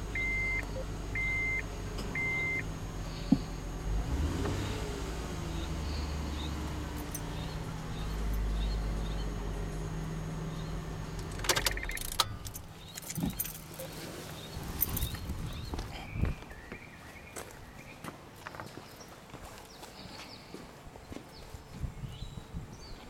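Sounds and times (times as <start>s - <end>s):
car engine idling: 0.0s - 15.9s
keys jangling and clicks: 7.0s - 7.4s, 11.4s - 13.9s, 14.8s - 15.2s.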